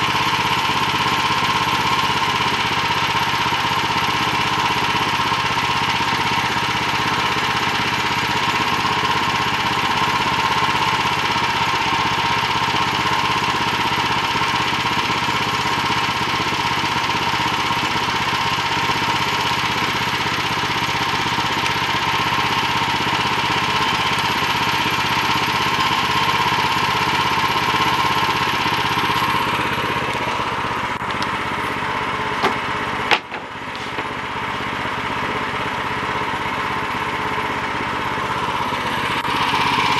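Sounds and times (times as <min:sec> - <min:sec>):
bandsaw sawing through log: 0:31.5 - 0:34.2
sharp knocks: 0:32.4 - 0:34.1.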